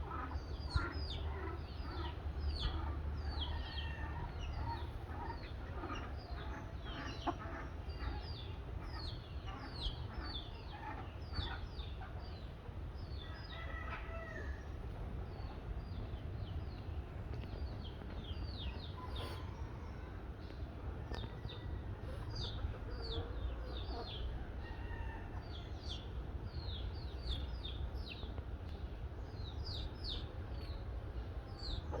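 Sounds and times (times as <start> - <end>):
birds chirping: 0.0 - 32.0
steady low rumble: 14.4 - 32.0.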